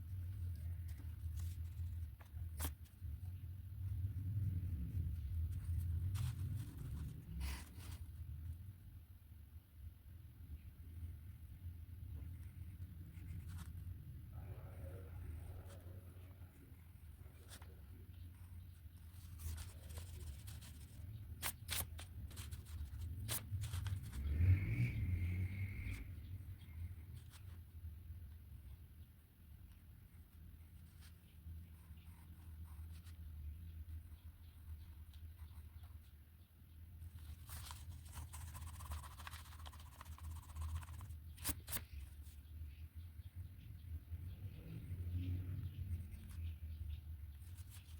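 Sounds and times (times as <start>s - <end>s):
pen strokes on paper: 19.1s - 24.2s, 37.1s - 41.9s.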